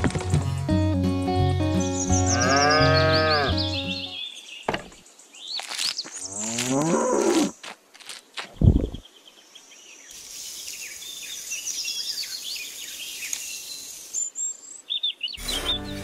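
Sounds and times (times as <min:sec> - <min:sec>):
background music: 0:00.0 - 0:04.2, 0:15.4 - 0:16.0
cow mooing: 0:02.3 - 0:03.8.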